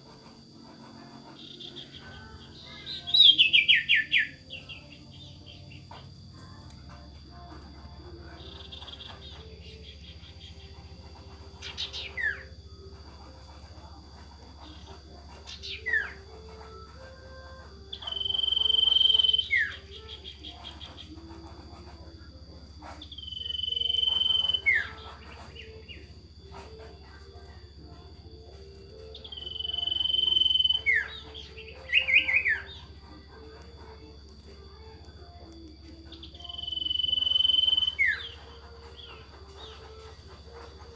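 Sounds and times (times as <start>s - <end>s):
faint high tones: 0.0s - 40.9s
steady hum: 0.0s - 40.9s
bird whistled notes: 1.3s - 5.3s, 15.4s - 21.9s, 22.9s - 26.7s, 28.8s - 32.9s, 36.0s - 40.8s
bird trilled call: 1.4s - 5.8s, 8.4s - 12.5s, 17.9s - 21.4s, 23.0s - 26.7s, 29.0s - 33.1s, 36.1s - 40.9s
bird calling descending whistles: 17.9s - 20.4s, 29.2s - 32.7s, 36.2s - 38.4s.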